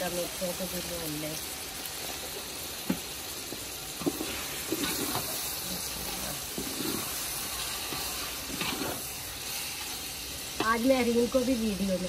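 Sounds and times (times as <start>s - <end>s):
curry sizzling in a pot: 0.0s - 12.0s
spatula knocking and scraping pot: 7.9s - 9.0s.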